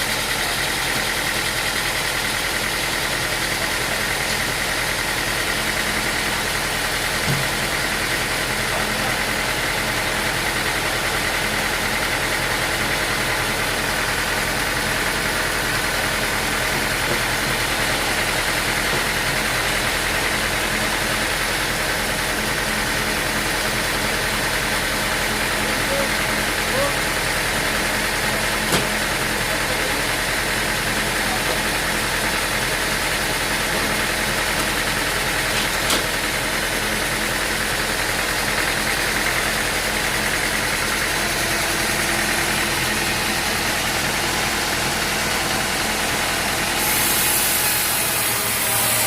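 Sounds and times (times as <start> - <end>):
sawmill machinery drone: 0.0 - 49.0.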